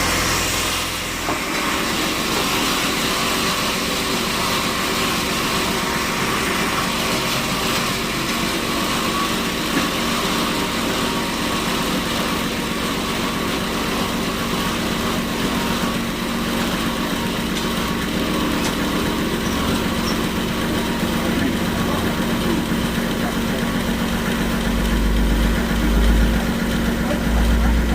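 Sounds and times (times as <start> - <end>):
sawmill machinery running: 0.0 - 27.9.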